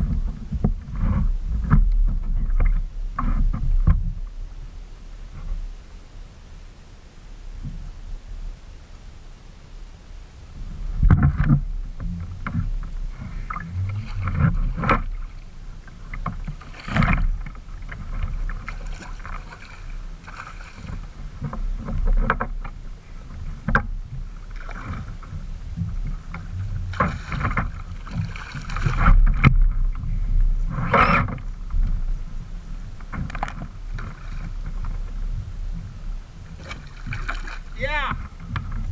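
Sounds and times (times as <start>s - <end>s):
paddle knocking on plastic hull: 0.0s - 4.2s, 11.0s - 15.3s, 16.1s - 30.0s
low rumble: 0.0s - 38.9s
paddle strokes splashing: 10.6s - 38.9s.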